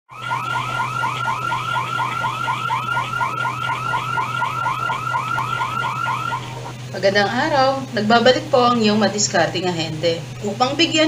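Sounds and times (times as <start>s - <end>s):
electronic alarm chirps: 0.1s - 6.9s
low hum: 0.1s - 7.4s.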